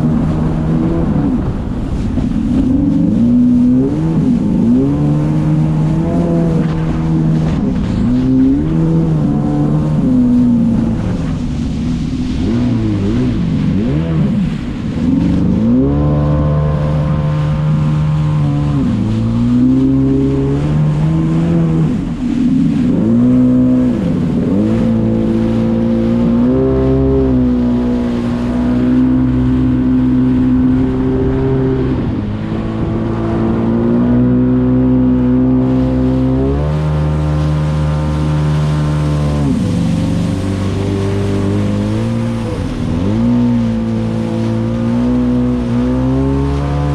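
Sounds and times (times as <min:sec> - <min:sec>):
jet ski engine revving: 0:00.0 - 0:46.9.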